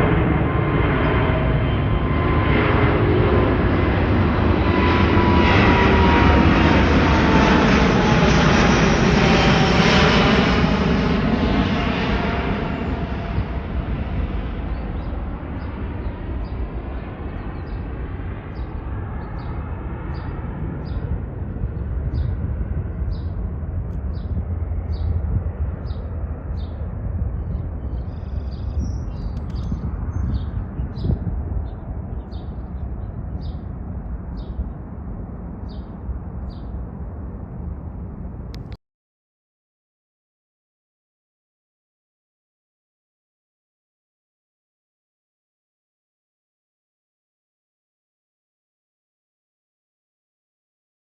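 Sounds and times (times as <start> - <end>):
jet airliner taking off: 0.0 - 38.8
small bird chirping: 27.8 - 32.8.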